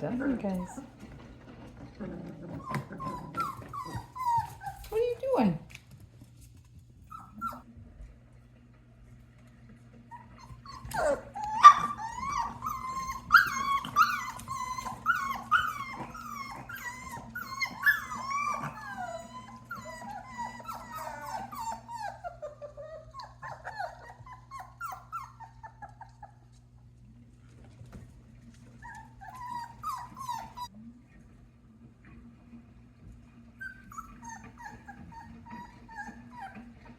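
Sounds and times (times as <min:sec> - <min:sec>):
puppies whining: 0:00.0 - 0:05.4, 0:07.0 - 0:07.7, 0:10.0 - 0:26.8, 0:28.6 - 0:30.9, 0:33.5 - 0:36.9.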